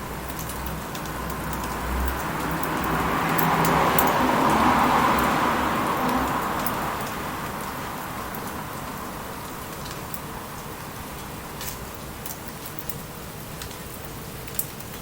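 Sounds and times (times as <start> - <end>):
bonfire crackling and popping: 0.0 - 15.0
light rain hiss: 0.0 - 15.0
loud rushing noise: 1.8 - 8.2.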